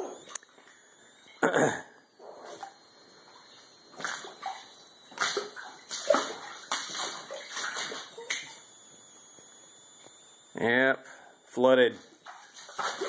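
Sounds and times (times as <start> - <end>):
boots splashing through water: 5.2 - 8.4.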